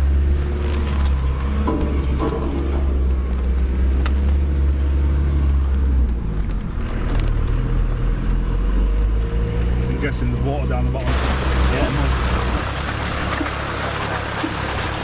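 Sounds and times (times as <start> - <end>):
off-road vehicle engine rumbling: 0.0 - 15.0.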